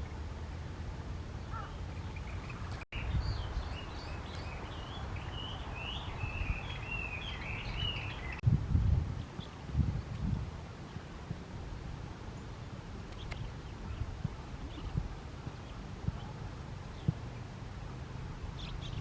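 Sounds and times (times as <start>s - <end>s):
small birds chirping: 1.3s - 8.4s, 12.3s - 19.0s.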